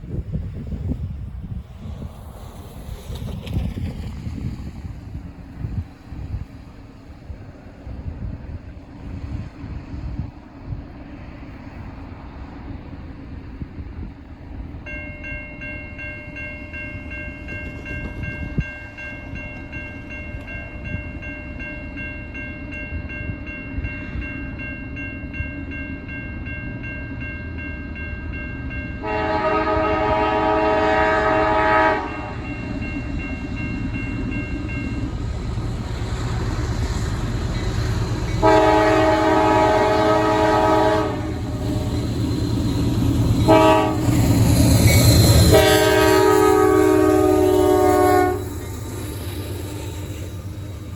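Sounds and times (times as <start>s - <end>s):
locomotive engine and wheel rumble: 0.0s - 50.9s
crossing signal bell ringing: 14.8s - 50.9s
train air horn blasts: 29.0s - 32.6s, 38.4s - 42.1s, 43.4s - 48.6s.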